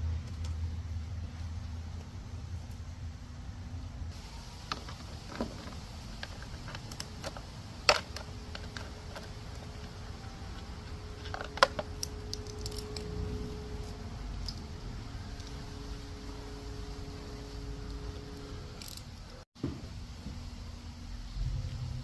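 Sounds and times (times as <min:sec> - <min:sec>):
low steady hum: 0:00.0 - 0:22.0
hard parts clicking and knocking: 0:04.6 - 0:13.2.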